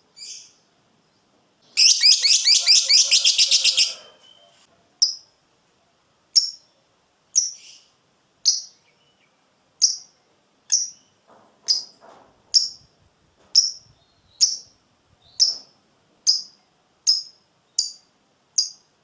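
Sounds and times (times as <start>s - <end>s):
lovebird chirping: 0.2s - 0.6s, 1.7s - 5.2s, 6.4s - 11.9s, 13.6s - 18.8s.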